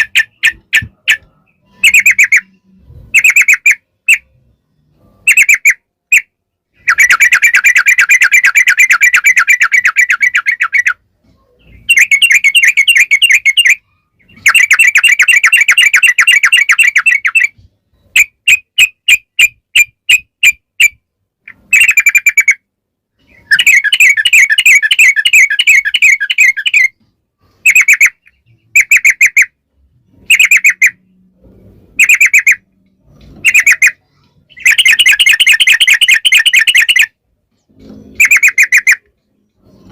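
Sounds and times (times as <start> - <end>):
bird calling in rattling trills: 11.8 - 17.6, 23.2 - 27.0, 30.2 - 31.0, 32.0 - 32.6, 33.4 - 37.1, 38.0 - 39.9.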